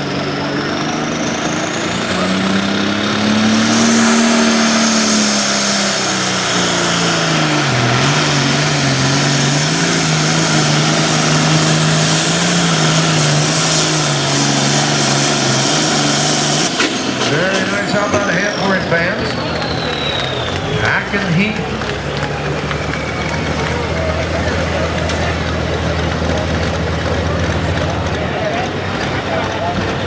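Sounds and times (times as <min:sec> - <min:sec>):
tractor diesel engine full throttle: 0:00.0 - 0:30.0
high whistle: 0:11.2 - 0:21.2.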